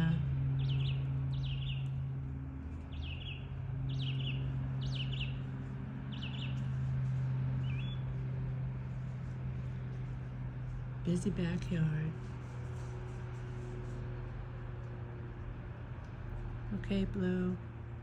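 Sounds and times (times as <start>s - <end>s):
songbird chirping: 0.0s - 12.0s
steady low hum: 0.0s - 18.0s.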